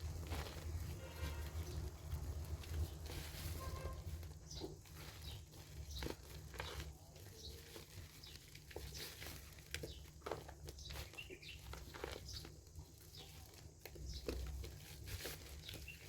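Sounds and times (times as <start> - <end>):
wet soap clicks and crackles: 4.2 - 16.0.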